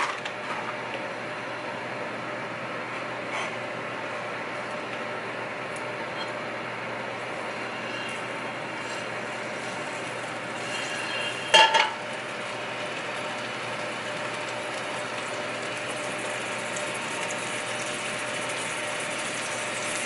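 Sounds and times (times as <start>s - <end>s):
food sizzling in a frying pan: 7.5s - 20.0s
utensil clatter: 7.7s - 12.2s.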